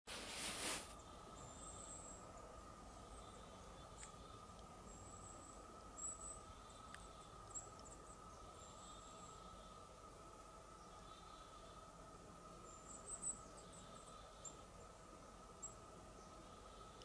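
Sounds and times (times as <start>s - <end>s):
faint steady hum: 0.1s - 17.0s.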